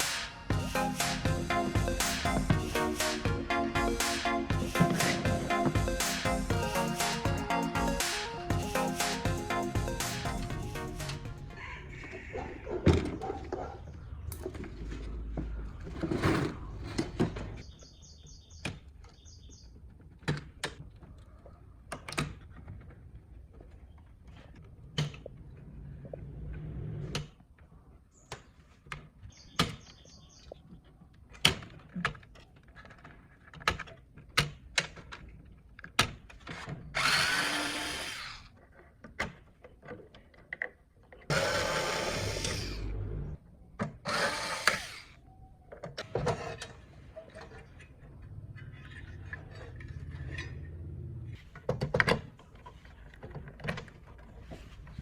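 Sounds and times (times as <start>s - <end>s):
clicks and knocks of parts: 31.1s - 36.8s
handheld power tool running: 37.0s - 38.5s, 41.3s - 42.9s, 44.0s - 45.2s.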